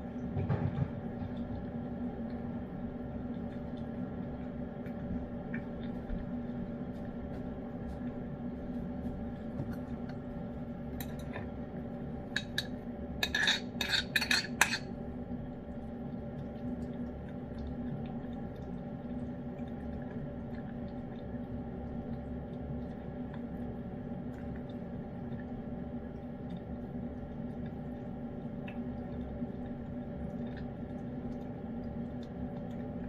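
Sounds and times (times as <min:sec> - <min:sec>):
steady hum: 0:00.0 - 0:33.0.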